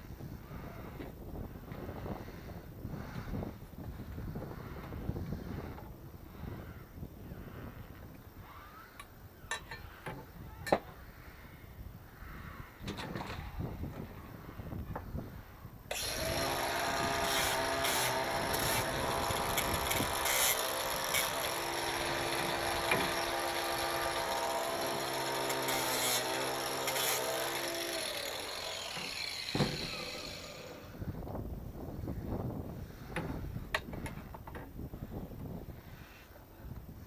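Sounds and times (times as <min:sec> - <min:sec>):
electric power tool grinding: 0:15.9 - 0:31.0.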